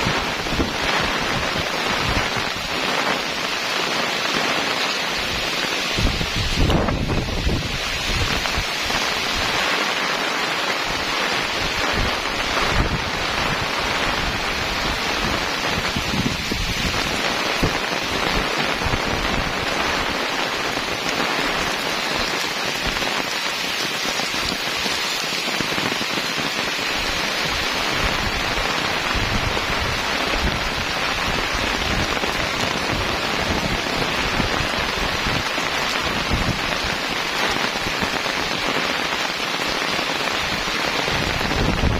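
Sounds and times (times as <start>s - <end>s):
heavy rain pouring: 0.0s - 41.9s
wind buffeting microphone: 5.9s - 9.5s, 11.5s - 20.1s, 27.0s - 37.0s, 40.4s - 41.9s.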